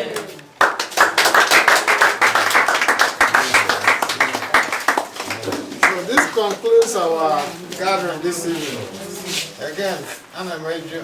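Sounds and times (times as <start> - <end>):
group of people clapping: 0.0 - 7.2.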